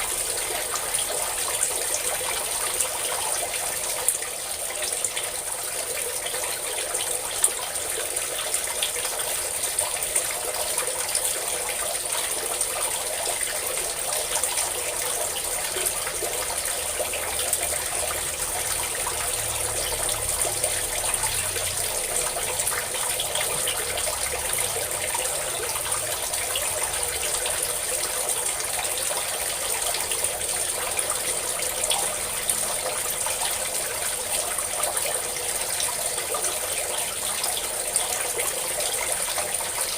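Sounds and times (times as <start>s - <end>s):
water pouring and splashing: 0.0s - 39.9s.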